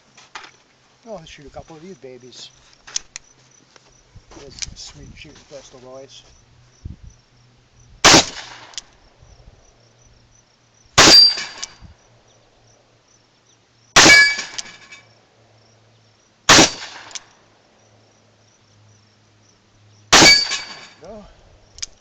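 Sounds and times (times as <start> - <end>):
revolver gunshots: 8.0 - 8.8, 11.0 - 11.7, 14.0 - 14.7, 16.5 - 17.2, 20.1 - 20.9.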